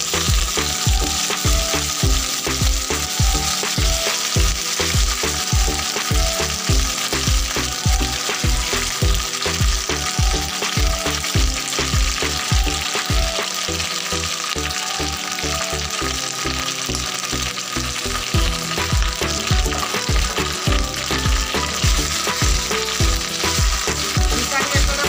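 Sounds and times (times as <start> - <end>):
background music with steady beat: 0.0 - 25.0
curry leaves sizzling in oil: 0.0 - 25.0
spatula stirring: 18.0 - 25.0.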